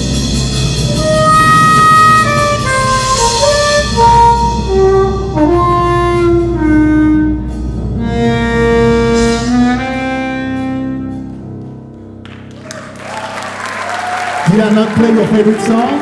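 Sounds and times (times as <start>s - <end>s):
harmonica melody: 0.8s - 11.6s.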